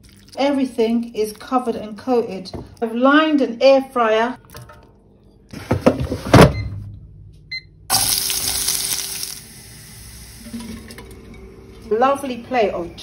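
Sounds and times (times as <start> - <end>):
vegetables sizzling in a frying pan: 7.9 - 10.5.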